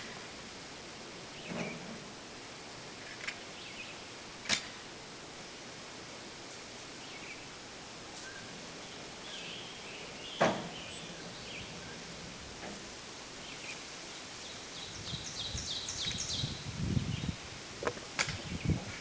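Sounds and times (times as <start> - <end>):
outdoor background hiss: 0.0 - 19.0
faint bird chirps: 8.2 - 12.1.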